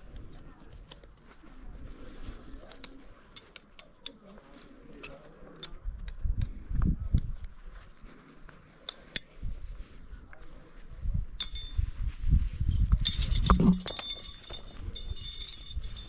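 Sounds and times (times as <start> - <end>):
metal climbing gear clinking: 11.4 - 11.8, 13.0 - 16.0.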